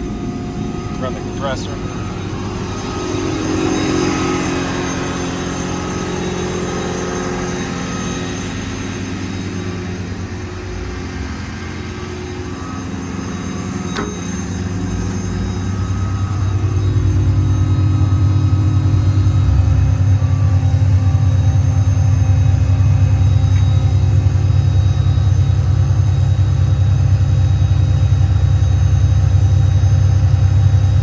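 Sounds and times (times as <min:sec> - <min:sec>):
diesel engine driving air compressor: 0:00.0 - 0:31.0
sharp click: 0:13.9 - 0:14.3.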